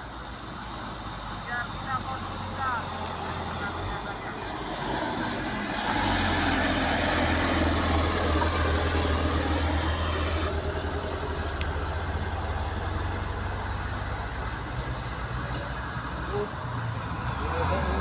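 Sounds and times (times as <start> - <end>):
thin high whine: 0.0 - 17.3
diesel truck engine labouring: 0.0 - 18.0.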